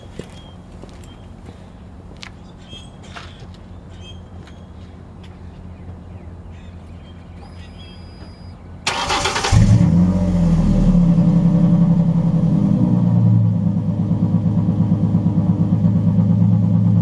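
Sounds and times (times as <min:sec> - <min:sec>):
engine idling: 0:07.5 - 0:17.0.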